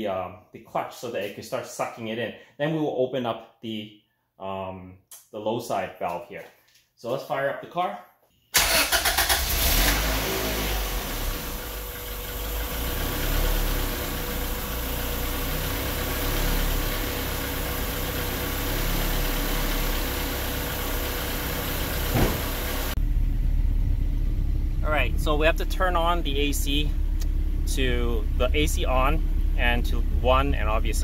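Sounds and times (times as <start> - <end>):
car engine idling: 9.0 - 31.0.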